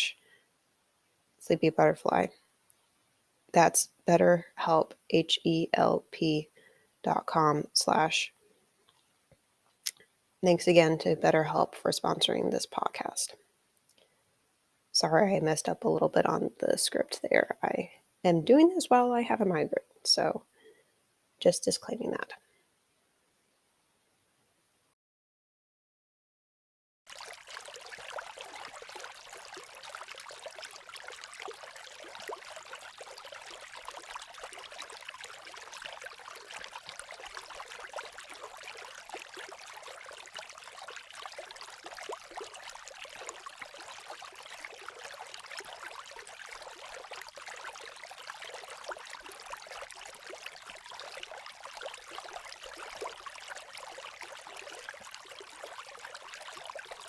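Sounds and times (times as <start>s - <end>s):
babbling creek water: 0.0s - 14.1s, 14.8s - 20.5s, 27.1s - 57.0s.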